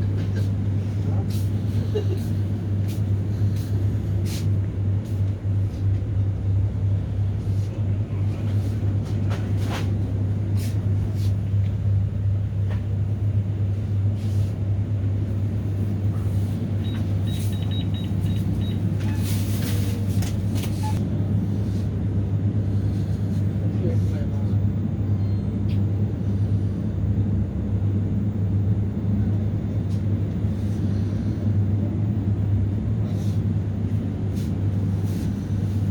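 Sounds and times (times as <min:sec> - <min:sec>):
heavy engine droning: 0:00.0 - 0:35.9
high beeps: 0:16.8 - 0:18.8.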